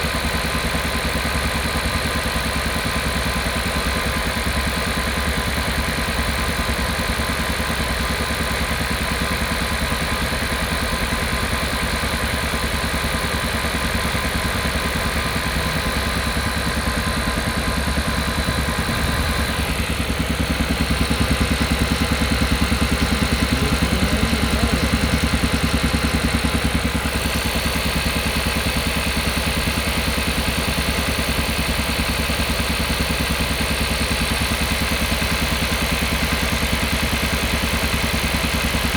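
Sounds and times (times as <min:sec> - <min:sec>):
engine low thudding pulse: 0:09.6 - 0:28.0.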